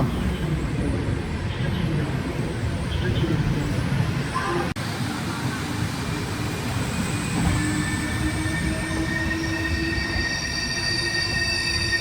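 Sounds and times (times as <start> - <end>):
train brakes squealing: 6.1 - 12.0.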